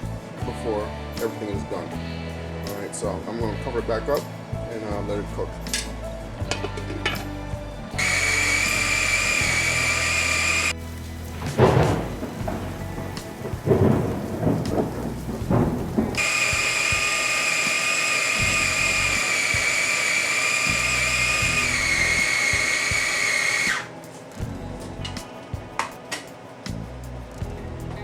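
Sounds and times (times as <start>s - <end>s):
food chopper motor chopping: 8.0s - 10.8s, 16.2s - 23.9s.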